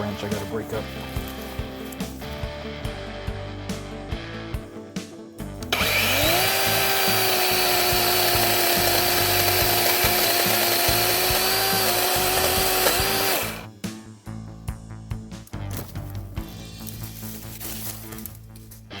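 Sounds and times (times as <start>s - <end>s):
electric chainsaw cutting branch: 5.7s - 13.7s.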